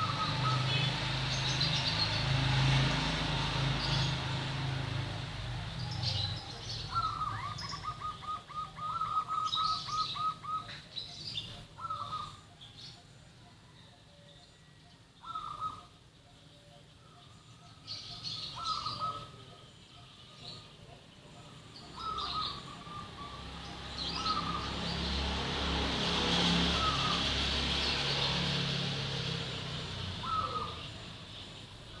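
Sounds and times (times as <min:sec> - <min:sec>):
dove cooing: 0:00.0 - 0:00.9, 0:05.6 - 0:12.5, 0:15.2 - 0:16.9, 0:18.4 - 0:24.8, 0:26.7 - 0:27.4, 0:30.2 - 0:31.1
small bird chirping: 0:00.0 - 0:02.3, 0:05.7 - 0:25.2.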